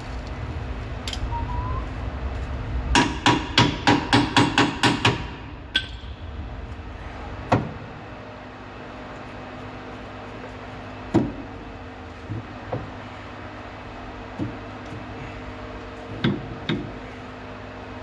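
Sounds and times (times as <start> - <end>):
hammer striking metal: 3.0 - 6.2.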